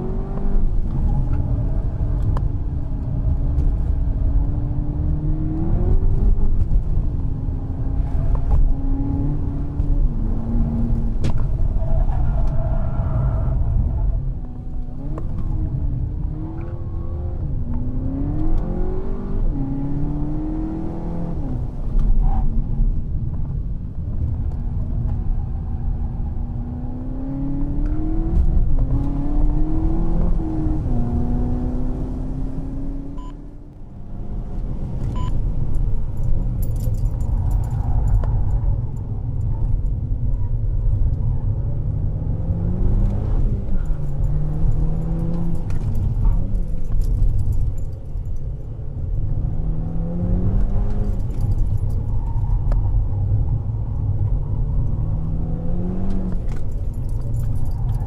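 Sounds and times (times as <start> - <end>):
road and wind rumble: 0.0 - 58.0
car engine revving: 26.6 - 33.3.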